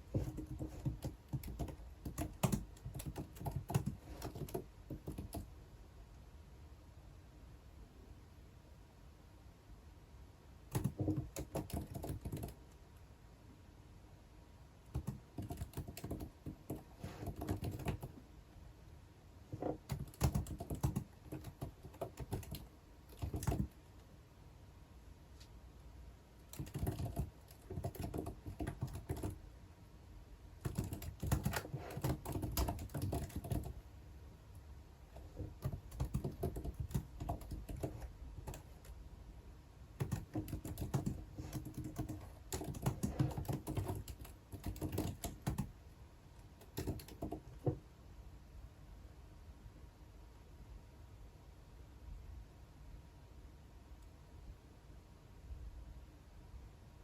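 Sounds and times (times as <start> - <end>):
typing on computer keyboard: 0.0 - 5.5, 10.7 - 12.7, 14.8 - 18.2, 19.5 - 23.8, 26.4 - 29.4, 30.6 - 33.8, 35.1 - 39.0, 40.0 - 45.7, 46.6 - 47.8.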